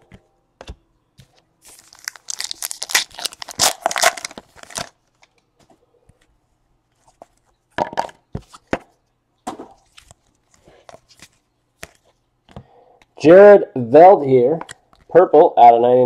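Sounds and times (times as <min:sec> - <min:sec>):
wrapper tearing and crinkling: 0:01.6 - 0:05.3.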